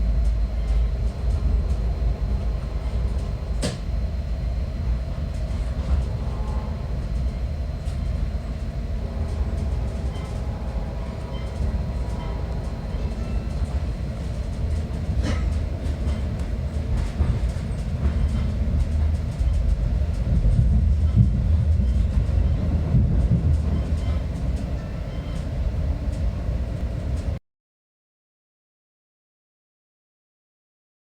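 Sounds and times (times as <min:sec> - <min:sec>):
train rumbling on rails: 0:00.0 - 0:27.4.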